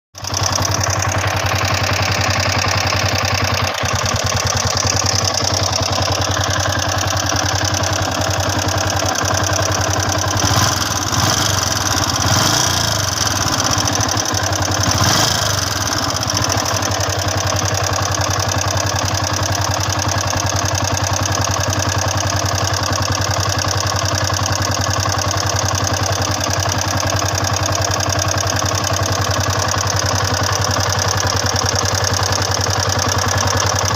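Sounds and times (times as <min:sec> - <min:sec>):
motorcycle engine idling: 0:00.2 - 0:33.9
engine throttle blips: 0:10.2 - 0:16.6.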